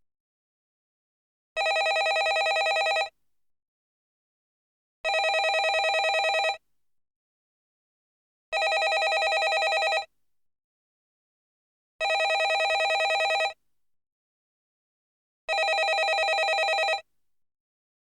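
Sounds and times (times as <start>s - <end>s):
landline telephone ringing: 1.6s - 3.1s, 5.1s - 6.6s, 8.6s - 10.1s, 12.0s - 13.6s, 15.5s - 17.0s.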